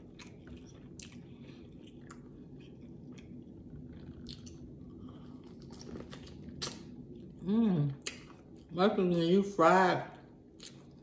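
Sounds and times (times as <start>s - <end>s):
chewing with wet mouth clicks: 0.0s - 7.4s, 8.0s - 8.7s, 10.5s - 11.0s.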